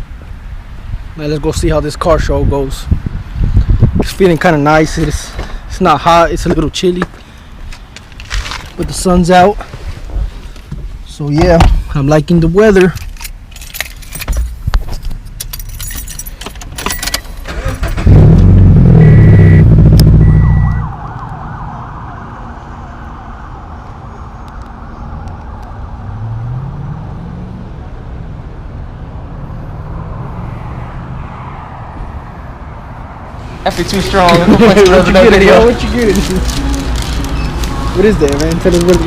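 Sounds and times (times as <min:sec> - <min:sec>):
keys jangling: 0:12.9 - 0:17.3
car engine starting and revving: 0:17.3 - 0:20.9, 0:33.4 - 0:39.0.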